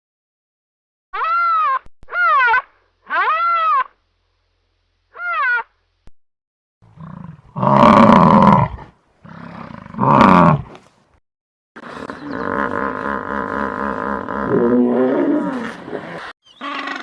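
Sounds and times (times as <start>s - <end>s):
animal calls rising and falling: 1.2s - 4.0s.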